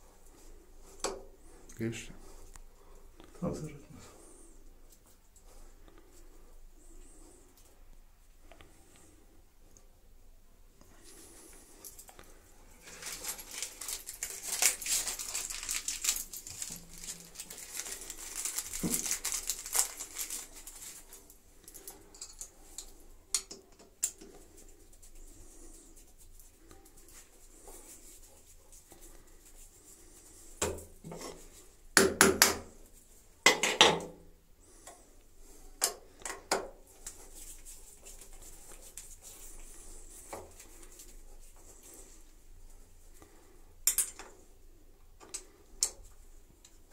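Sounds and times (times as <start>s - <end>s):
metal tools rustling and scraping: 12.8s - 23.0s.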